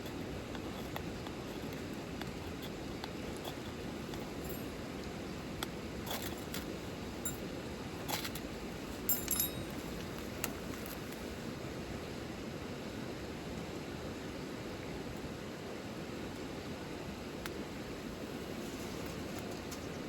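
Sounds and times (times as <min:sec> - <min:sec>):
sharp clicks and light clinks: 0:03.4 - 0:06.6, 0:09.1 - 0:11.0.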